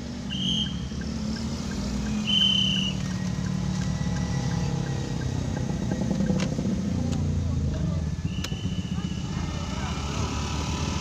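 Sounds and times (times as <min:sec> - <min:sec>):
car engine running: 0:00.0 - 0:11.0
high whistle-like beep: 0:00.3 - 0:00.9, 0:02.1 - 0:03.0, 0:08.2 - 0:09.4
faint regular ticking: 0:03.1 - 0:07.8.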